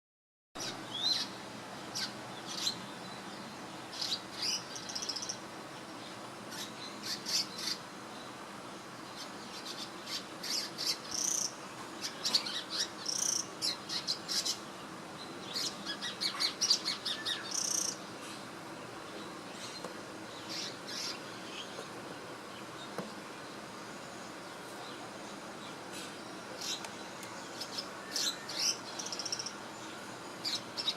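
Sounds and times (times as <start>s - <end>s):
small bird chirping: 15.4s - 18.0s, 24.0s - 30.9s.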